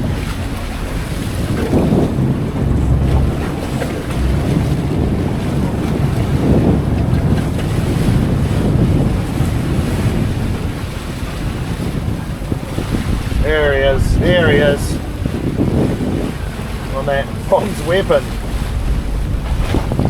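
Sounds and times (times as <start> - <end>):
sea washing around hull: 0.0 - 20.0
wind buffeting microphone: 0.0 - 20.0.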